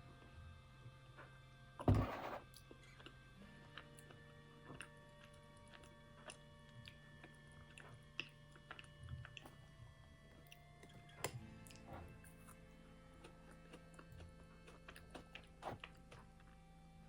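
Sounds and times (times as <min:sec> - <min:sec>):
soft background music: 0:00.0 - 0:17.0
chewing and mouth clicks: 0:02.6 - 0:12.6, 0:13.2 - 0:16.6.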